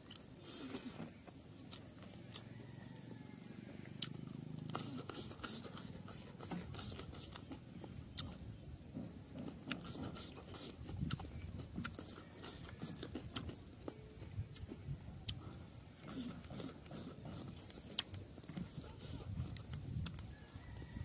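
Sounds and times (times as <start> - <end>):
close chewing: 0.0 - 3.2, 3.8 - 21.0
sharp mouth clicks: 4.0 - 5.9, 9.6 - 12.1, 14.5 - 20.3.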